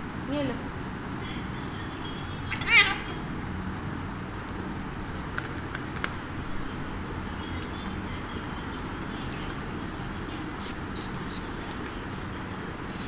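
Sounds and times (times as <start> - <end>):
low hum of distant traffic: 0.0 - 13.0
parrot call: 10.6 - 11.6.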